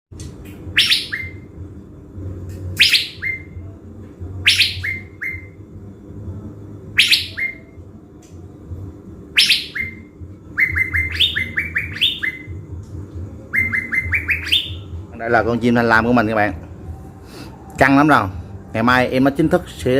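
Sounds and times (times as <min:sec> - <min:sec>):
songbird calling sharp notes: 0:00.7 - 0:01.5, 0:02.8 - 0:03.6, 0:04.4 - 0:05.6, 0:07.0 - 0:07.7, 0:09.4 - 0:12.6, 0:13.5 - 0:15.4.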